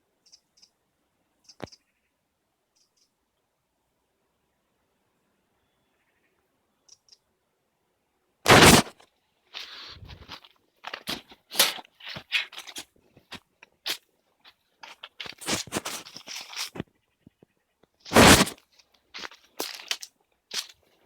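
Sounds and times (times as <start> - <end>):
crunching and clicking materials: 8.5 - 9.0, 9.6 - 16.9, 18.0 - 20.9.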